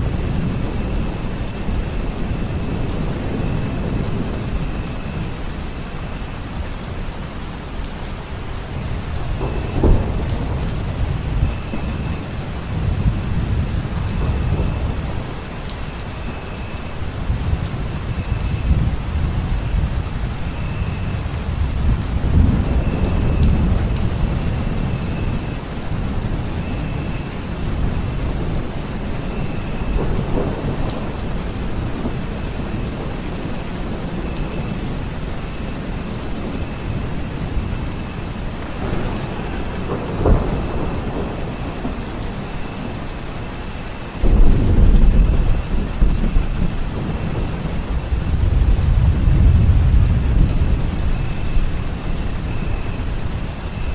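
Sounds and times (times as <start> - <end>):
steady rain falling: 0.0 - 53.9
thunder rumbling: 0.0 - 53.9
loud rolling thunderclap: 8.8 - 15.5, 17.2 - 34.6, 38.8 - 43.0, 44.2 - 53.9.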